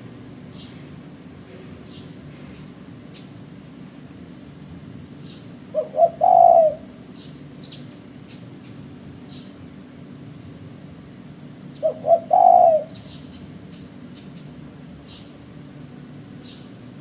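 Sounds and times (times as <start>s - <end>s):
small birds chirping: 0.5s - 1.0s, 1.8s - 3.6s, 5.0s - 9.7s, 11.6s - 15.5s, 16.3s - 16.9s
dove cooing: 5.7s - 7.1s, 11.7s - 13.2s.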